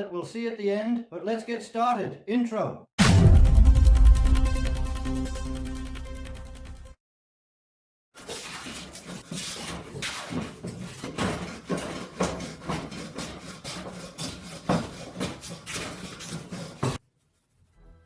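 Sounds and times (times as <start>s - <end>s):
scraping strokes on wood: 8.2s - 17.8s.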